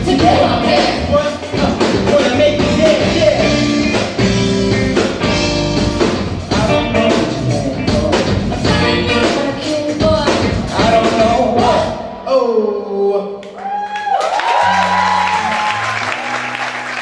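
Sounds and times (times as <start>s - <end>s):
live rock band playing: 0.0s - 12.2s.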